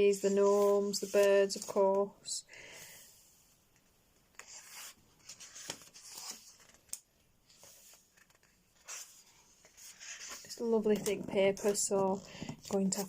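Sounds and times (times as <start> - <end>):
paper pages turning: 4.3 - 13.0.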